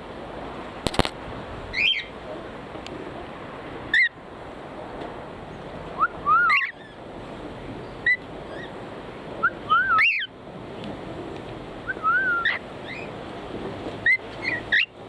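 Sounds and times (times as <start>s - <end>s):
sharp clicks: 0.8s - 1.2s
cockatiel chirping: 1.8s - 2.1s, 6.0s - 7.0s, 9.4s - 10.3s, 11.9s - 13.1s, 14.0s - 14.9s
cockatiel whistling rising notes: 6.0s - 6.9s, 9.4s - 10.3s, 11.9s - 13.1s.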